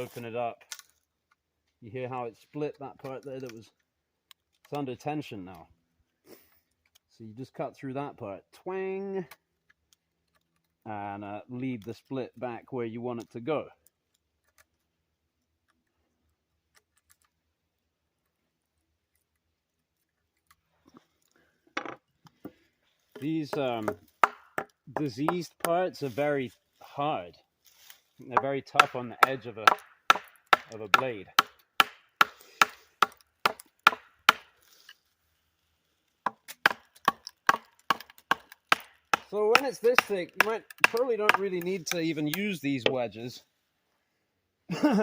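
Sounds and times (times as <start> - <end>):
wooden mallet striking wedge: 23.2 - 25.8, 28.4 - 34.5, 36.3 - 41.4.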